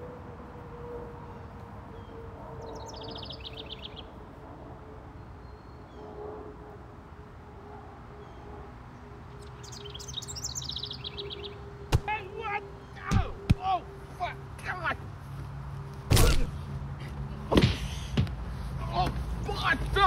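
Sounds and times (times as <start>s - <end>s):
songbirds singing: 1.2s - 4.2s, 5.0s - 6.2s, 8.1s - 20.0s
high bird trill: 2.0s - 4.1s, 9.3s - 14.4s.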